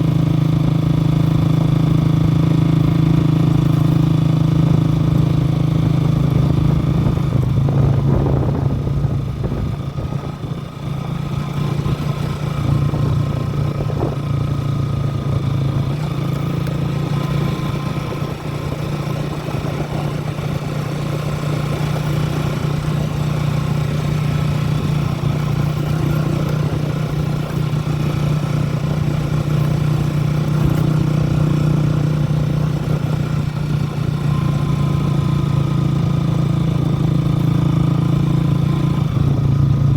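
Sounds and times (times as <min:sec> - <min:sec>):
engine droning: 0:00.0 - 0:39.9.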